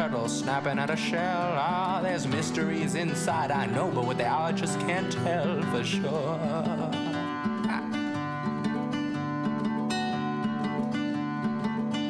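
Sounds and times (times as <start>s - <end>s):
acoustic guitar folk music: 0.0s - 12.0s.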